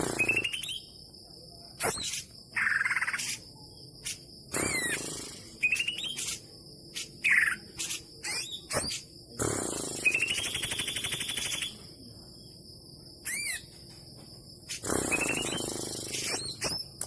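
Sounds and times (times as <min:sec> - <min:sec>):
steady high insect buzz: 0:00.0 - 0:17.0
bird singing whistled phrases: 0:05.6 - 0:06.4, 0:10.1 - 0:11.7.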